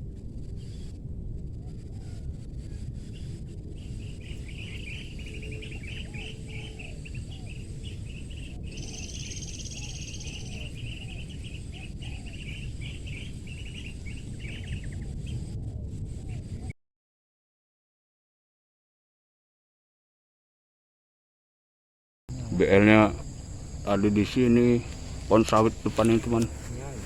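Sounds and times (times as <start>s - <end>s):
low rumbling background noise: 0.0s - 16.7s, 22.3s - 27.0s
small birds chirping: 3.0s - 15.6s, 22.3s - 27.0s
doves cooing: 3.8s - 16.7s, 22.3s - 27.0s
thin high whine: 22.3s - 27.0s.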